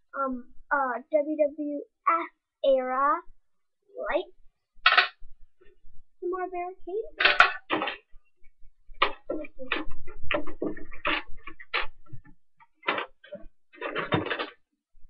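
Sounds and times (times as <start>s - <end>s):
plastic toy pieces clicking: 4.9s - 5.2s, 7.2s - 8.0s.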